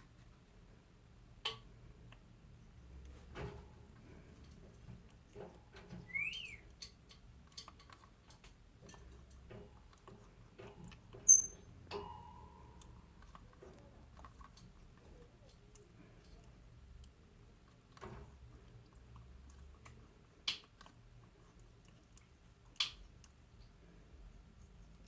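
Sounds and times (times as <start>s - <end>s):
parrot whistling: 6.1s - 6.7s, 11.3s - 11.6s.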